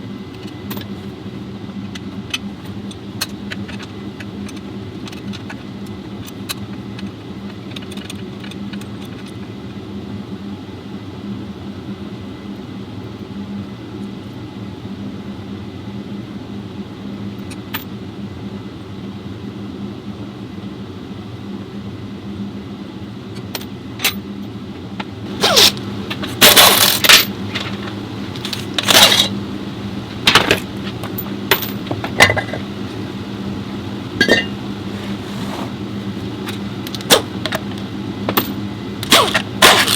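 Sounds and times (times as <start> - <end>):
steady low hum: 0.0 - 39.9
metal parts and tools clinking: 1.9 - 5.6, 25.3 - 29.4, 30.2 - 32.7, 34.2 - 34.6, 36.4 - 39.9.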